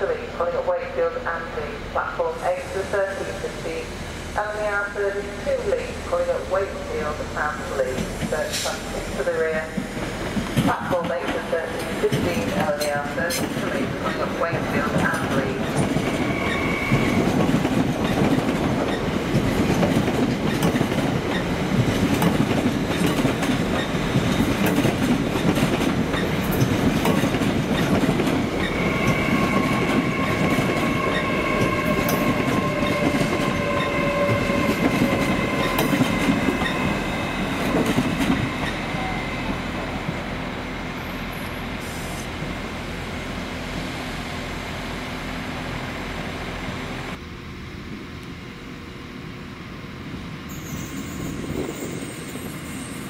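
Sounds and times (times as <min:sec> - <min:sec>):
train rumble: 0:00.0 - 0:53.0.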